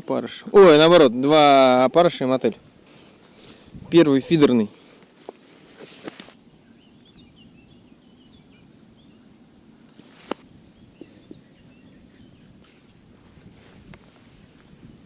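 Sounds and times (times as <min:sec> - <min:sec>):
small birds twittering: 0:02.0 - 0:14.0.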